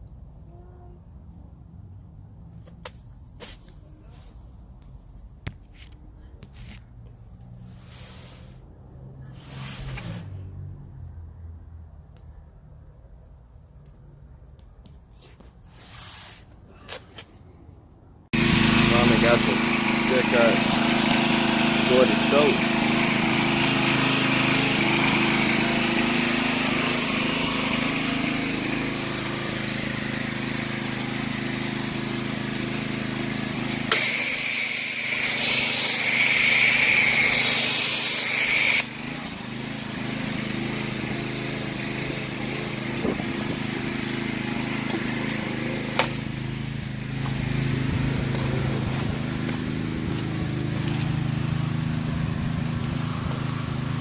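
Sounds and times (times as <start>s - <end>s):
small gas engine running: 18.3s - 54.0s
hissing water spray: 18.4s - 46.2s.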